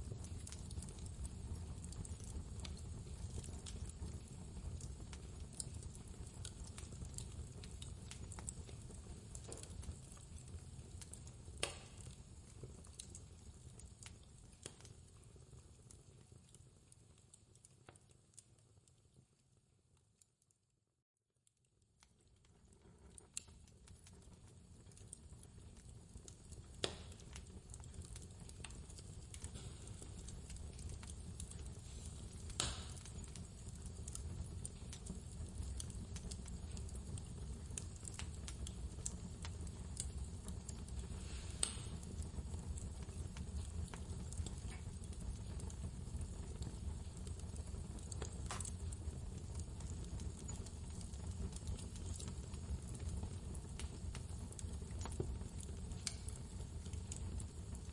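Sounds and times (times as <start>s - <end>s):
wood fire crackling and popping: 0.0s - 20.5s, 21.4s - 57.9s.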